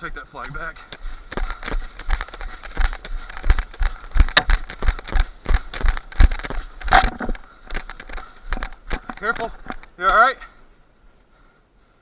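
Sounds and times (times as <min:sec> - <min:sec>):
running footsteps in dry leaves: 0:00.0 - 0:09.7
kit rattling: 0:00.6 - 0:10.0.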